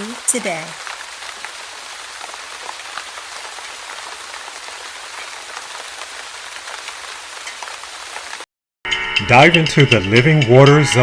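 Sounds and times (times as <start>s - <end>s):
rain-like patter: 0.0s - 8.5s.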